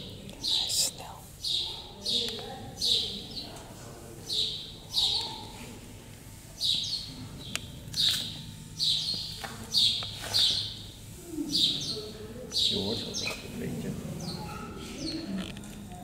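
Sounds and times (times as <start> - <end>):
small bird chirping: 4.3 - 5.6, 6.6 - 13.5.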